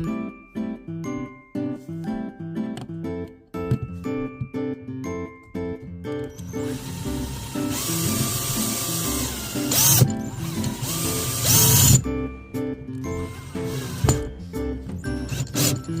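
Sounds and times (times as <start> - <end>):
background music: 0.0 - 16.0
power drill whining: 6.4 - 12.0, 13.1 - 14.4, 15.2 - 16.0.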